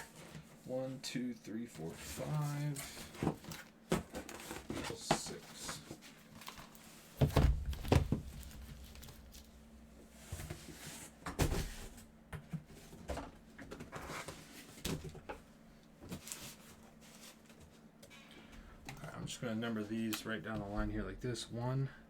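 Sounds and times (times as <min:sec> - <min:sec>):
cardboard boxes knocking on table: 0:07.2 - 0:09.5.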